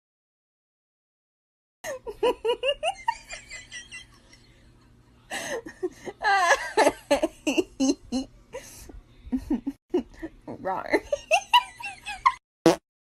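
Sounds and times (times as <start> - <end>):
person laughing: 1.8 - 4.4, 5.3 - 10.4.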